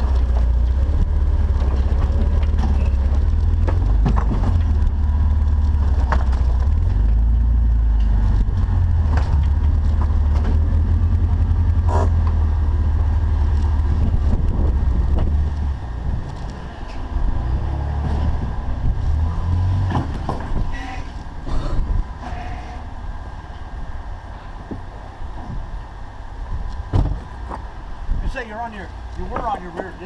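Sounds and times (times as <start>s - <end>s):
knocks from vehicle and rocks: 0.0s - 12.4s, 14.0s - 15.6s, 19.5s - 20.8s, 26.9s - 27.7s, 29.2s - 30.0s
engine running at low revs: 0.0s - 22.2s.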